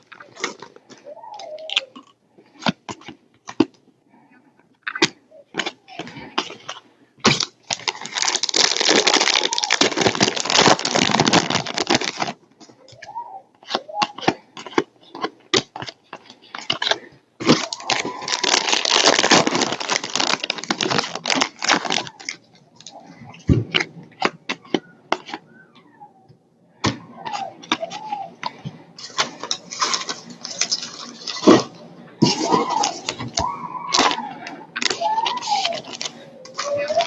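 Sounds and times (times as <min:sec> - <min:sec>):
foil wrappers crinkling and tearing: 0:04.9 - 0:25.4, 0:27.2 - 0:37.0.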